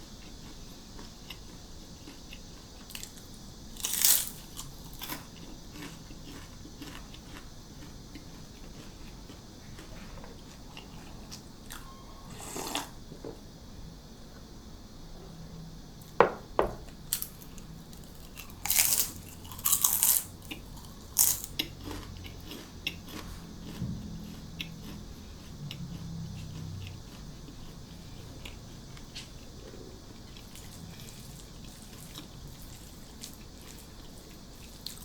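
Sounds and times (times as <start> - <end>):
crunchy bites: 2.9 - 13.0, 17.1 - 29.8
quiet chewing: 4.4 - 12.9, 17.2 - 35.0.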